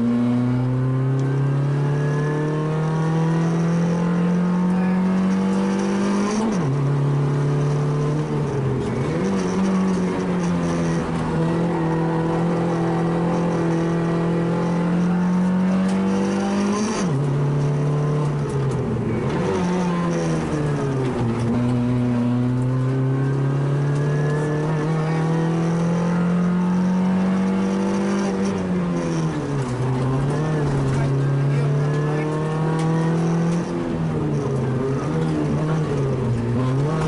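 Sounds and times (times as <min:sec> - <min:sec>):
rally car engine at high revs: 0:00.0 - 0:37.0.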